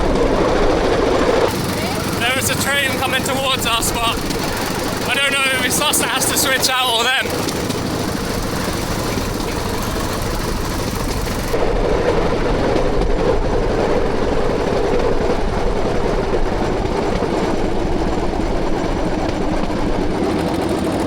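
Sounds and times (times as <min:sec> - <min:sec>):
small engine running: 0:00.0 - 0:12.5.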